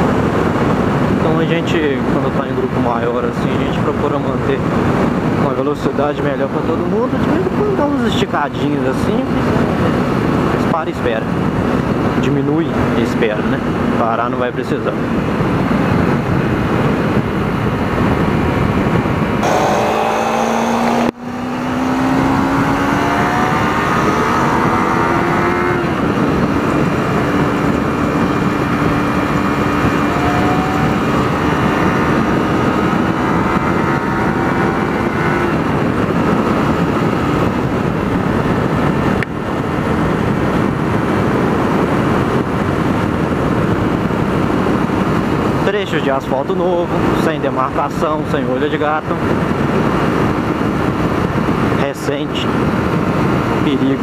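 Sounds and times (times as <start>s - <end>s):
wind rush: 0.0s - 54.0s
motorcycle engine accelerating: 18.4s - 45.5s.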